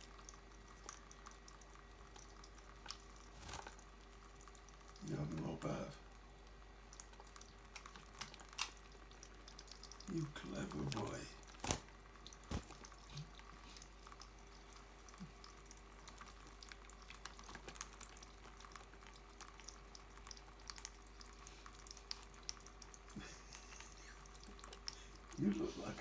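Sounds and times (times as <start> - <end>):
bird splashing in water: 3.2 - 3.8, 11.4 - 13.0.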